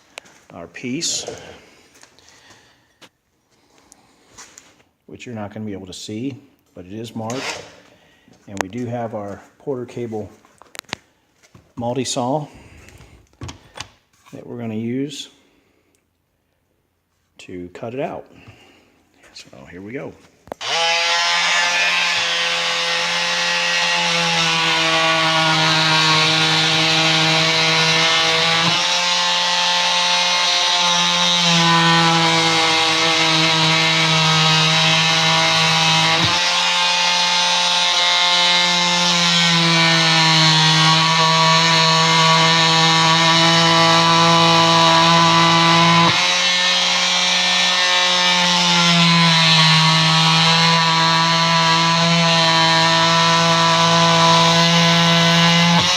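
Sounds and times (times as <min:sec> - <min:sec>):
saw cutting rubber: 0:07.2 - 0:07.9, 0:20.5 - 0:55.9.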